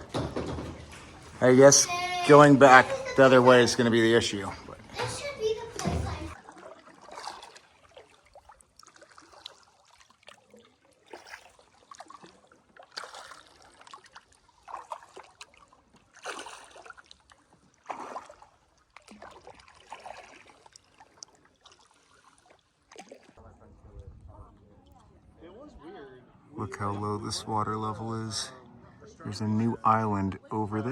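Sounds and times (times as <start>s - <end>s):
paddle splashing through water: 0.0s - 23.5s.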